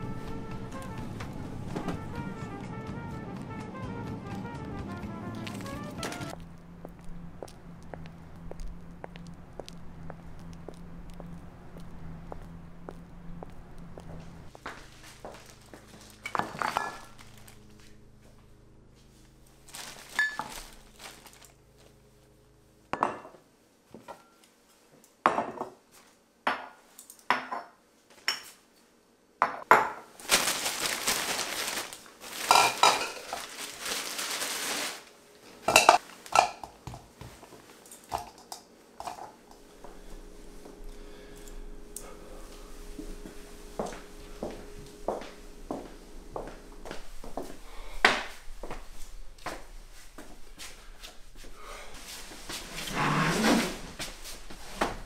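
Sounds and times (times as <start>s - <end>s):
plastic bag rustling: 14.8s - 18.0s, 19.6s - 21.9s, 30.2s - 36.4s
glass bottles clinking on tiles: 16.2s - 17.1s, 20.1s - 20.6s, 32.5s - 33.3s, 35.7s - 36.8s.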